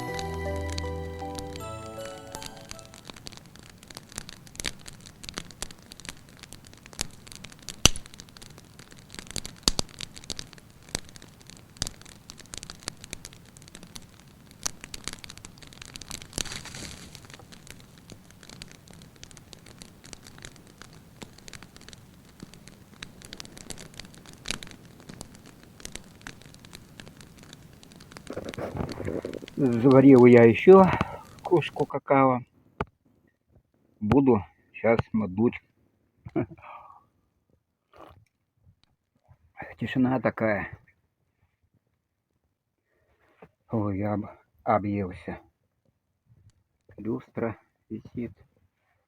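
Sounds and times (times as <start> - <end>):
sharp fire pops: 0.0 - 31.9
wood fire crackling: 0.0 - 32.0, 33.8 - 37.0.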